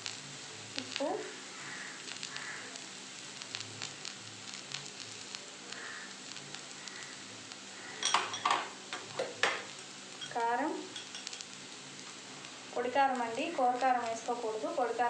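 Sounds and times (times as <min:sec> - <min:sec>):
slices frying in oil: 0:00.0 - 0:15.0
kitchenware clinks: 0:08.0 - 0:08.7.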